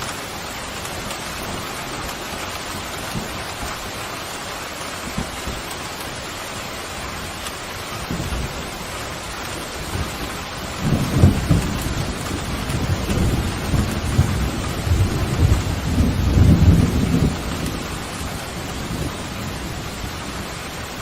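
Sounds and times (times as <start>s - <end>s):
heavy rain: 0.0s - 21.0s
thunder rumbling: 7.9s - 21.0s.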